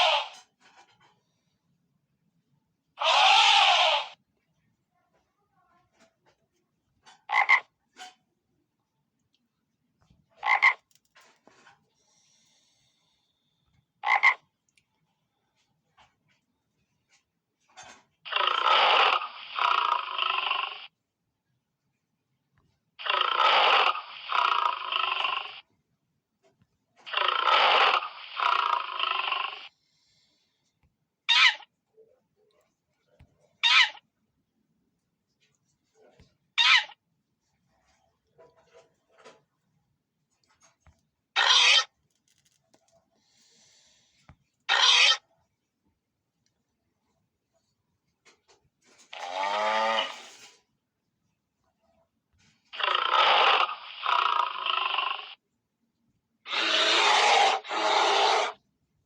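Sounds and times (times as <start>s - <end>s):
animal harsh rasping call: 0.0s - 0.5s, 3.0s - 4.2s, 18.3s - 20.9s, 23.0s - 25.6s, 27.1s - 29.7s, 31.3s - 31.7s, 33.6s - 34.0s, 36.6s - 37.0s, 41.4s - 41.9s, 44.7s - 45.3s, 49.1s - 50.5s, 52.7s - 55.4s, 56.4s - 58.6s.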